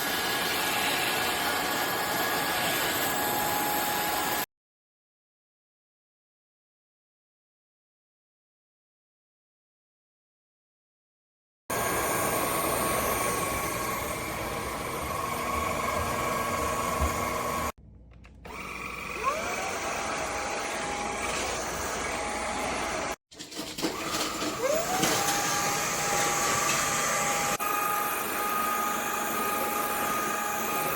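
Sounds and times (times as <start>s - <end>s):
stick vacuum motor whining: 11.7s - 17.7s, 18.4s - 30.9s.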